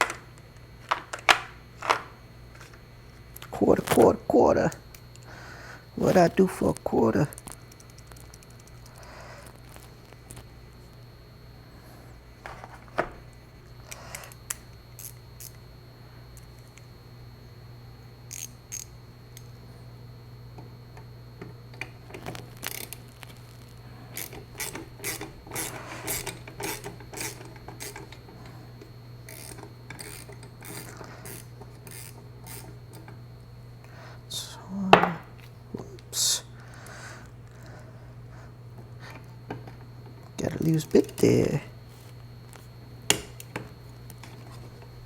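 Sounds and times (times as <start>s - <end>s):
steady low hum: 0.0s - 45.0s
hand tools clicking and scraping: 24.1s - 28.4s.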